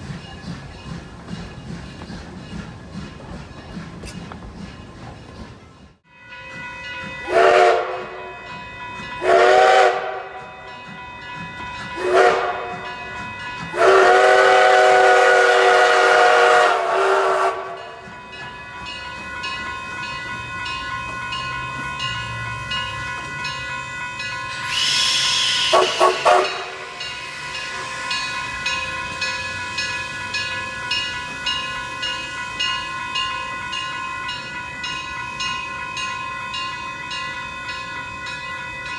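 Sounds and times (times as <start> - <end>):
train pulsing beat: 0.0 - 38.9
steam locomotive whistle blasts: 7.0 - 18.1, 23.3 - 31.0
steam hissing burst: 24.5 - 29.4.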